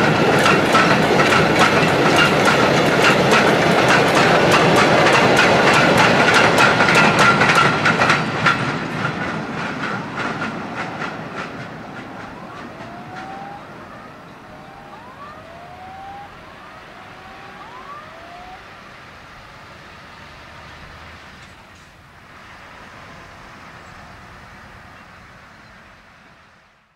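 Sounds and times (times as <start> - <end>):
train wheels clicking over joints: 0.0 - 18.6
faint rising whistles: 10.7 - 19.4
high wheel squeal: 11.5 - 18.6.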